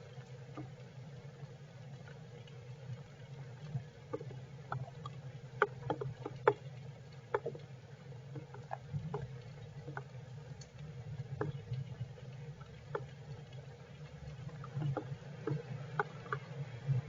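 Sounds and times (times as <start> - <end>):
raindrops tapping on shelter: 14.0 - 16.8.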